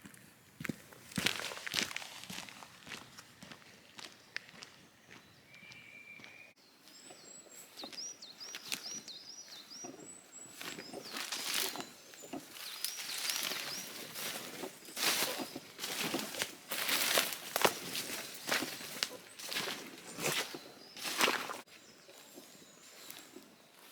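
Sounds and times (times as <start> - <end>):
footsteps rustling on woodland floor: 0.0 - 23.9
songbird singing high notes: 4.3 - 13.9.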